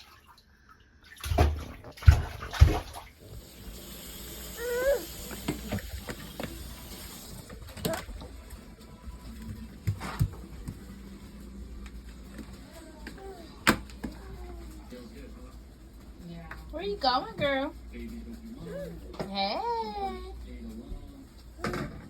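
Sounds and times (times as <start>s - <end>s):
running water hissing: 3.2s - 8.4s.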